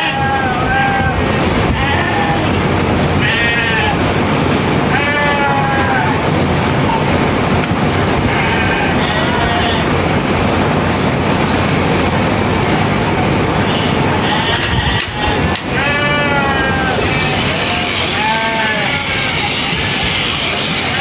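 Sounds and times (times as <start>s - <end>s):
sheep bleating: 0.0s - 2.5s, 3.2s - 4.0s, 4.9s - 6.2s, 8.3s - 9.9s, 14.4s - 21.0s
loud rushing noise: 0.0s - 21.0s.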